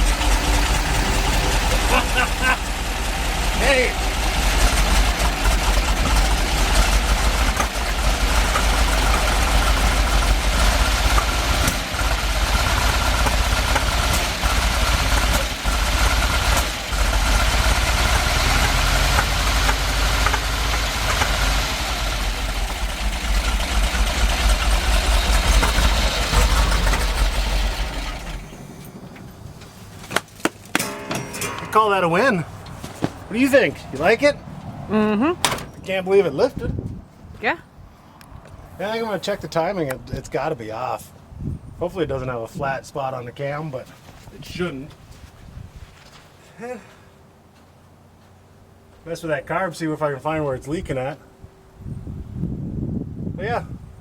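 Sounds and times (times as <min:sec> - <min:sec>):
engine pops: 0:00.0 - 0:34.7
truck engine running: 0:00.0 - 0:36.0.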